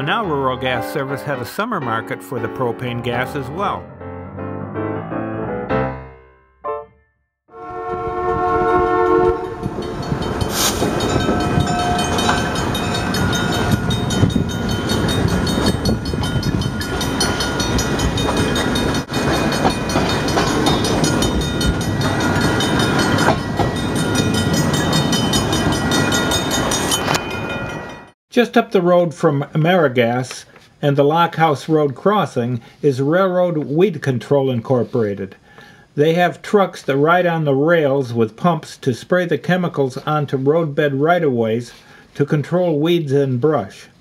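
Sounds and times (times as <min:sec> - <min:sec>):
train horn: 0:07.5 - 0:10.0
train wheels on rails: 0:09.4 - 0:28.1.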